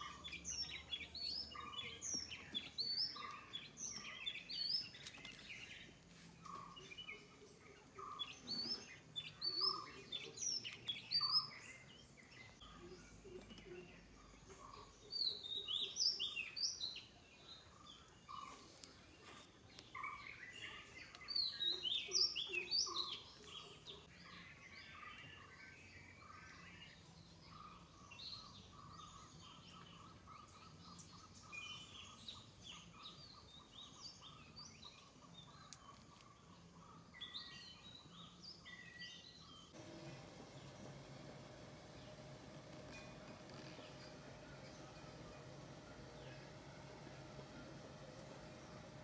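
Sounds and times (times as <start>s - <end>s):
birds singing: 0.0s - 49.0s.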